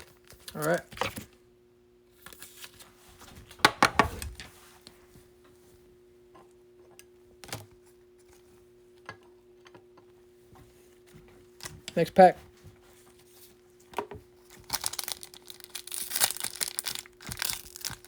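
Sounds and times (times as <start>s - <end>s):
cards crinkling rustle: 0.0s - 1.3s, 2.2s - 3.0s, 14.4s - 18.0s
faint steady hum: 0.0s - 18.0s.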